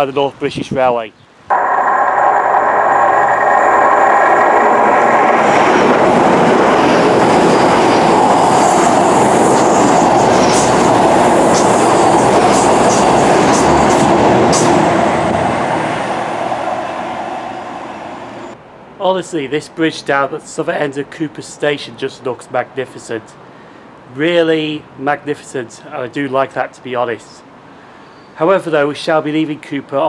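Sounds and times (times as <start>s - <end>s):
train passing at speed: 1.5s - 18.6s.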